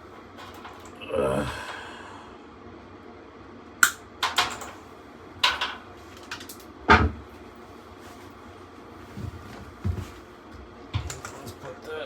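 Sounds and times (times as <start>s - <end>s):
metal tools clinking and knocking: 0.3s - 1.0s, 11.0s - 11.7s.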